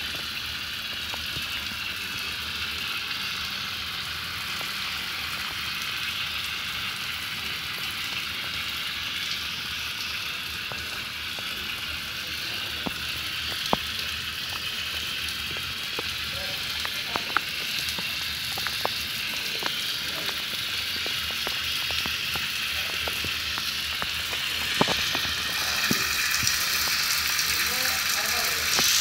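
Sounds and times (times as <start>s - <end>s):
tap water spraying: 0.0s - 29.0s
sharp ticks of drops: 10.0s - 27.6s.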